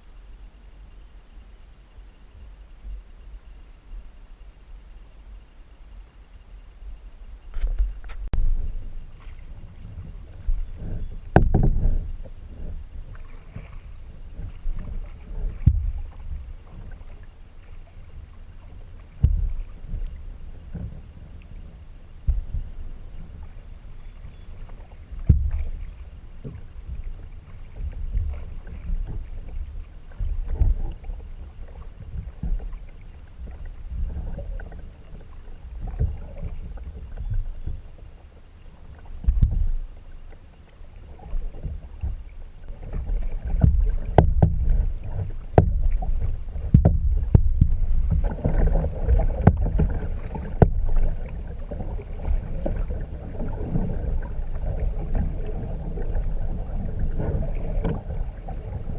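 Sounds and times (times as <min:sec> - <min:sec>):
low rumble: 0:00.0 - 0:58.9
paddle stroke splash: 0:07.6 - 0:58.9.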